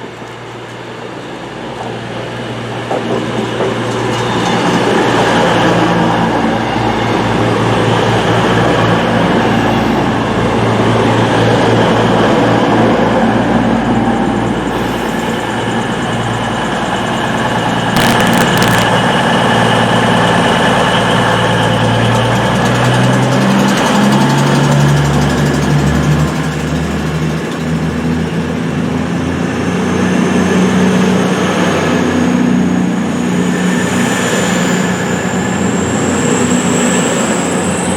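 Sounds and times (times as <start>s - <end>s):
diesel train engine running: 0.0s - 37.9s
sharp clicks: 18.0s - 19.0s.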